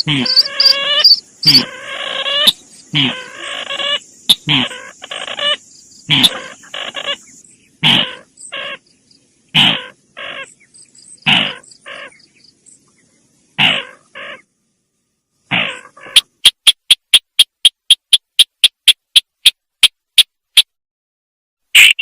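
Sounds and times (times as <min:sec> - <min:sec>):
bird giving harsh caw-like calls: 0:00.0 - 0:07.2, 0:07.8 - 0:08.8, 0:09.6 - 0:10.5, 0:11.2 - 0:12.2, 0:13.6 - 0:14.4, 0:15.5 - 0:16.3.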